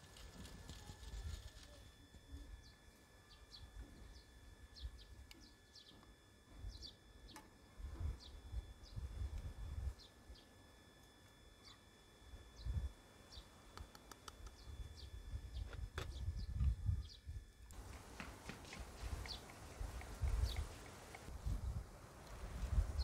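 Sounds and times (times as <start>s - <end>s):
small birds chirping: 0.2s - 10.6s, 11.6s - 11.9s, 12.5s - 23.0s
faint steady high tone: 0.7s - 15.5s.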